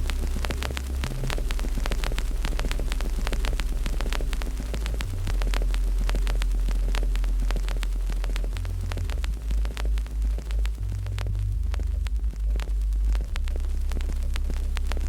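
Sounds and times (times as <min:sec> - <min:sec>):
loud low hum: 0:00.0 - 0:15.0
wood fire crackling and popping: 0:00.0 - 0:15.0.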